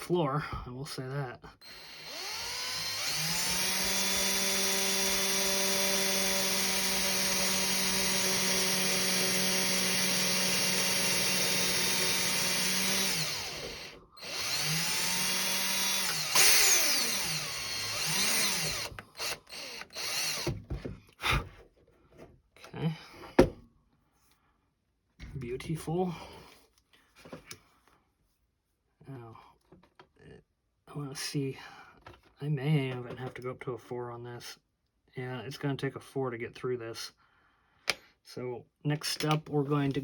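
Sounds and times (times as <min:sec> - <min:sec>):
electric drill whining: 0:01.6 - 0:20.7.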